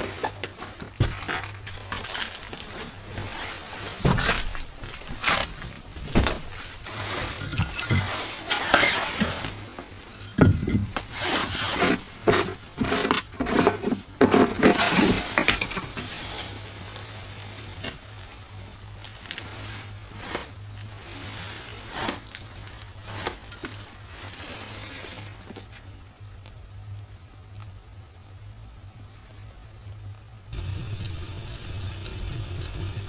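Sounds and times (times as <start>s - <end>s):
objects knocking and clattering: 0.0s - 16.1s.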